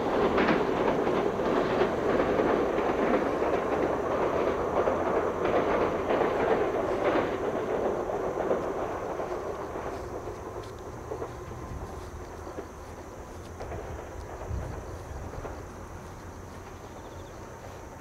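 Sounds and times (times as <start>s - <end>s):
electric train running past: 0.0s - 18.0s
wheels clicking over rail joints: 0.0s - 18.0s.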